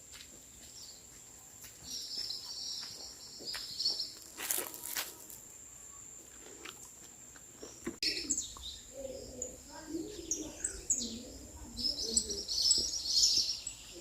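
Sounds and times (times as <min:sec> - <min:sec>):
high bird chirps: 0:07.7 - 0:14.0.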